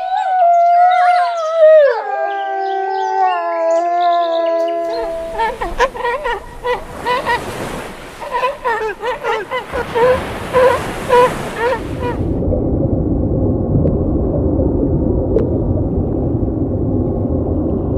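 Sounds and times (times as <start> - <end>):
cats mewing: 4.8 - 12.2
low rumbling noise: 11.8 - 17.9.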